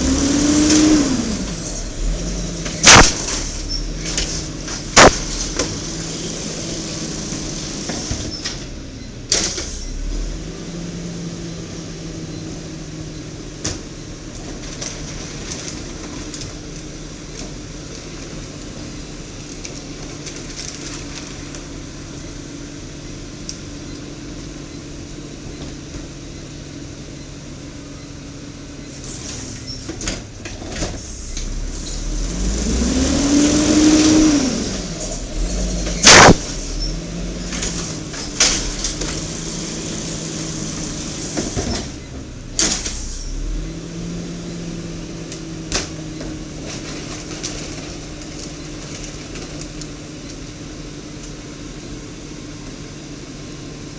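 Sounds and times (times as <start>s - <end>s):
garbage truck engine revving: 0.0s - 51.5s
loud bang: 1.6s - 6.0s, 35.0s - 36.9s.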